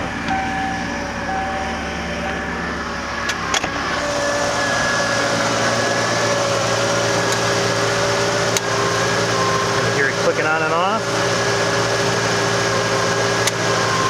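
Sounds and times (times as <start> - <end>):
door chime tone: 0.0 - 6.7, 7.6 - 10.0
car engine idling: 0.0 - 14.0
compressor clutch clicking: 5.9 - 9.4, 11.1 - 13.9.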